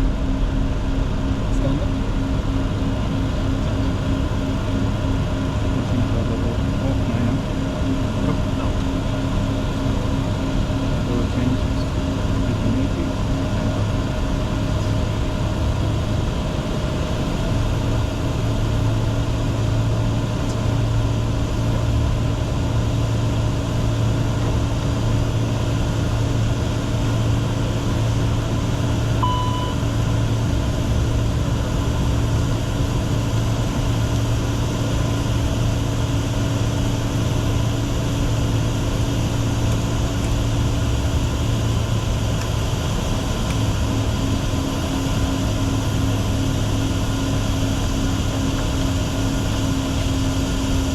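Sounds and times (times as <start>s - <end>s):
jet engines humming: 0.0s - 50.9s
short electronic beep: 29.2s - 30.0s.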